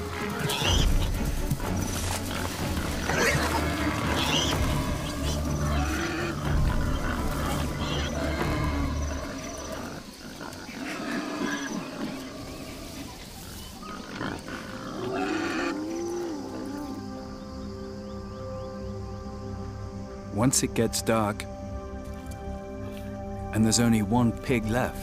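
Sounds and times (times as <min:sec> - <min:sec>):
low music drone: 0:00.0 - 0:10.0, 0:16.2 - 0:25.0
boars grunting and squealing: 0:00.0 - 0:17.0
leopard snarling growls: 0:02.0 - 0:16.9.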